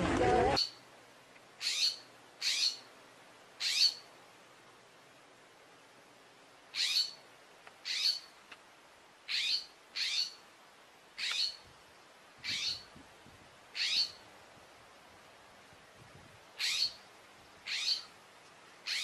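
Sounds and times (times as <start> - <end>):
bird chirping high-pitched: 0.5 - 0.8, 1.6 - 2.9, 3.6 - 4.0, 6.8 - 7.2, 7.9 - 8.3, 9.3 - 10.4, 11.2 - 11.6, 12.4 - 12.9, 13.8 - 14.2, 16.6 - 17.0, 17.7 - 18.1.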